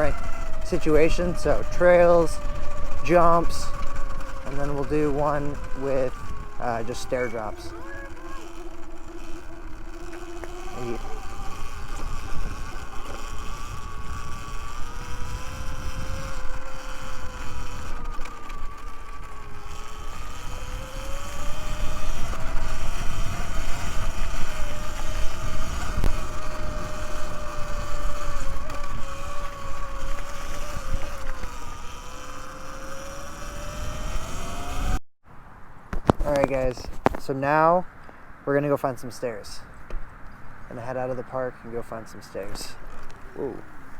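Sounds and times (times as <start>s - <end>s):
electric motor whine: 0.0s - 35.0s
wind and tyre rumble: 0.0s - 43.9s.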